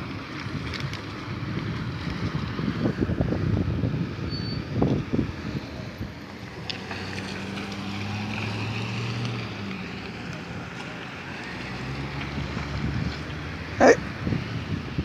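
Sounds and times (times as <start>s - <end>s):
wind buffeting microphone: 0.4s - 6.7s, 11.8s - 15.0s.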